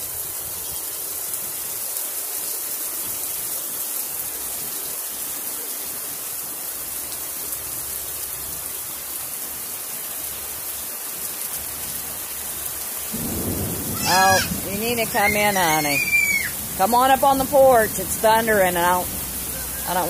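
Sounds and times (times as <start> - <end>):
heavy rain on asphalt: 0.0 - 20.0.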